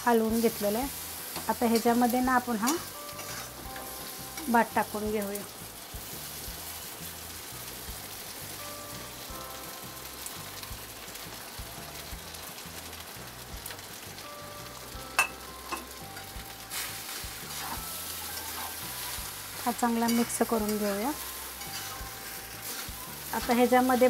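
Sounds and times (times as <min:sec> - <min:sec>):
food sizzling in hot oil: 0:00.0 - 0:24.0
steel spoon stirring and scraping: 0:01.3 - 0:04.5, 0:16.7 - 0:24.0
spoon clinking on pan: 0:15.2 - 0:16.0.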